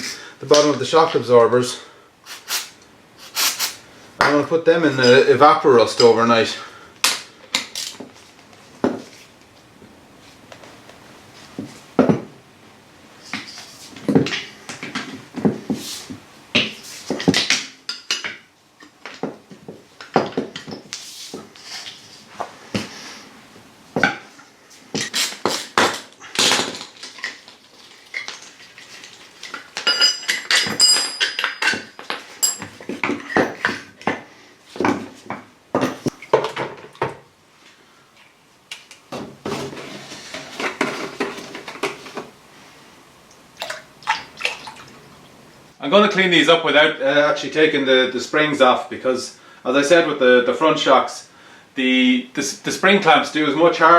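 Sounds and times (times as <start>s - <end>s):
metal tools clanking: 29.8s - 33.8s
metallic ringing: 29.9s - 32.7s.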